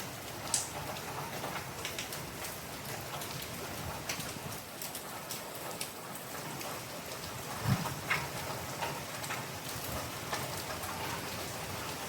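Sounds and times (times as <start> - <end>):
heavy rain falling: 0.0 - 12.0
sharp drip ticks: 0.5 - 7.4.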